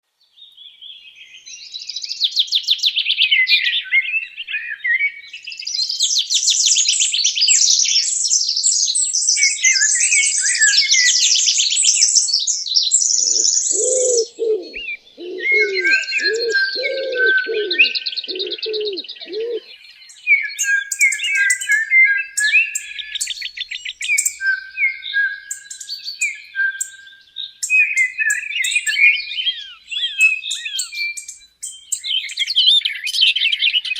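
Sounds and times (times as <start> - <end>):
small birds chirping and trilling: 0.2 - 33.9
dove cooing: 13.2 - 19.7.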